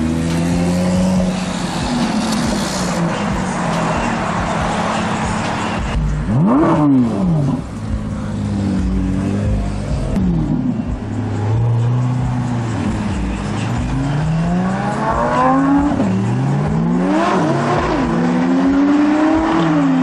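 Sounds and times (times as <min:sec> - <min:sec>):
car engines passing: 0:00.0 - 0:20.0.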